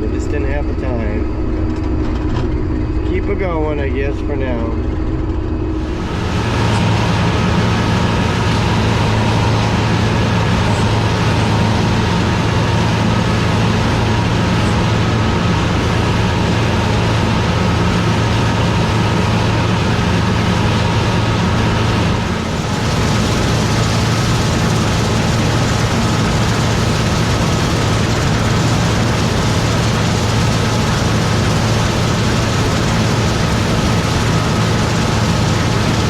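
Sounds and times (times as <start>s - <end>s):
combine harvester engine hum: 0.0s - 36.0s
high machinery whine: 0.0s - 36.0s.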